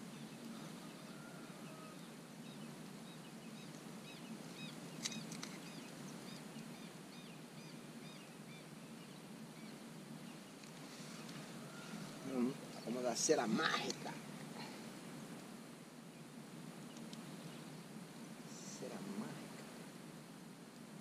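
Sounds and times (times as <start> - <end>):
bird chirping: 0.0 - 14.7
faint low background noise: 0.0 - 21.0.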